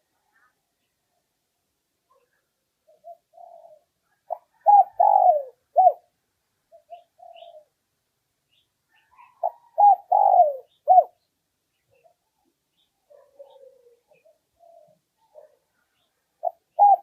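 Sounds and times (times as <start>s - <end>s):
dove cooing: 2.1s - 7.8s, 8.9s - 11.2s, 13.1s - 17.0s.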